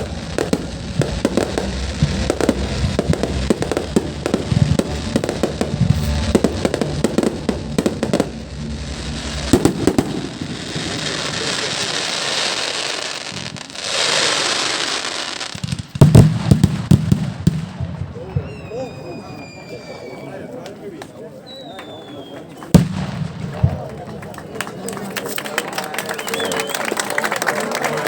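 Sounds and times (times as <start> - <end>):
fireworks bangs and pops: 0.0 - 19.7, 22.1 - 25.6
fireworks hissing crackle: 0.0 - 20.3.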